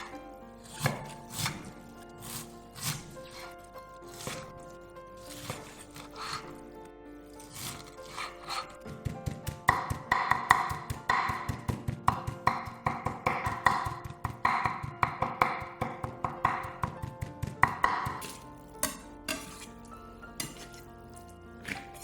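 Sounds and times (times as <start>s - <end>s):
knife chopping on wooden board: 0.0s - 3.5s, 4.1s - 6.6s, 7.4s - 19.8s, 20.4s - 20.9s
soft background music: 0.0s - 22.0s.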